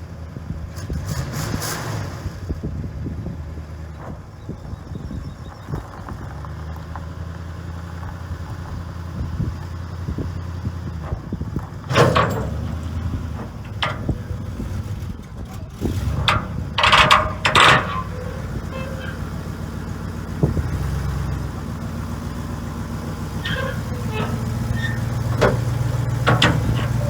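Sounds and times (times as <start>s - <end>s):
vehicle engine running: 2.6s - 27.0s
sharp knocks and clanks: 11.9s - 19.2s, 23.6s - 27.0s.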